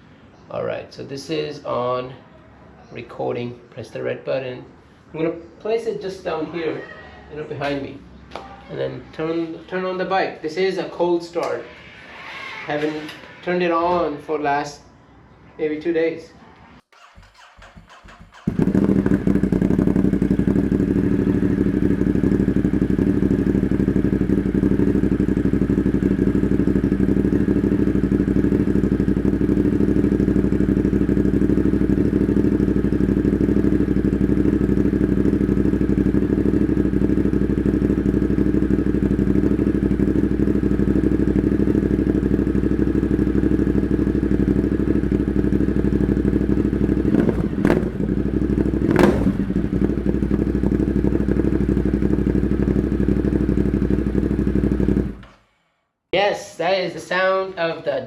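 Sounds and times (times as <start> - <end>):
motorcycle engine starting and idling: 16.8 - 55.5.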